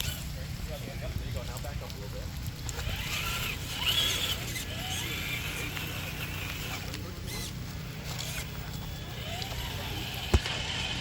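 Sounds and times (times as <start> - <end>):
electric motor and gears whining: 0.0 - 11.0.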